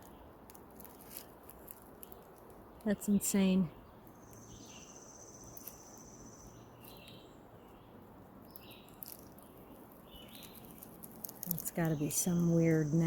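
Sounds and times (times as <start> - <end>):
insect trilling: 10.2 - 13.0.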